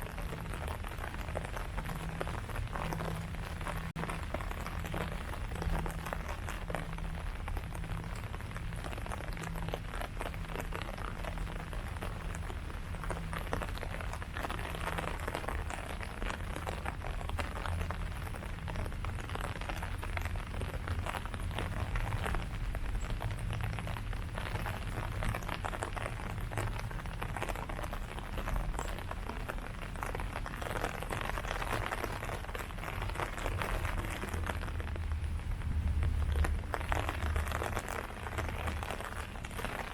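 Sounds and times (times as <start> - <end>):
rain falling on leaves: 0.0 - 39.9
low rumble: 32.6 - 39.7.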